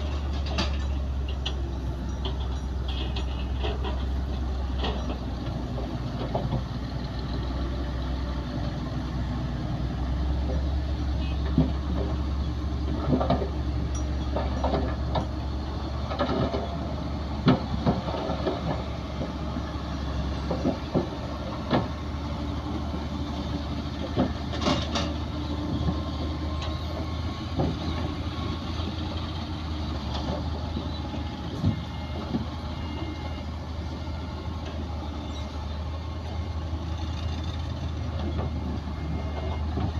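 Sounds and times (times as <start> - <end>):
metallic clanks and knocks: 0.0 - 6.7, 12.9 - 16.8, 24.0 - 28.1
heavy diesel machinery rumbling: 0.0 - 39.9.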